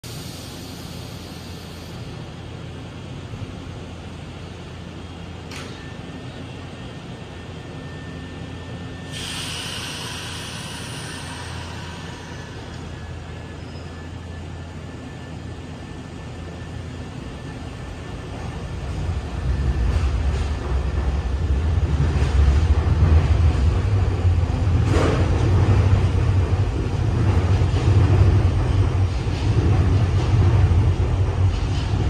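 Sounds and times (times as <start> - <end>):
station hall hum: 0.0 - 32.0
train rumbling: 0.0 - 32.0
hiss: 0.1 - 2.2, 9.1 - 13.1.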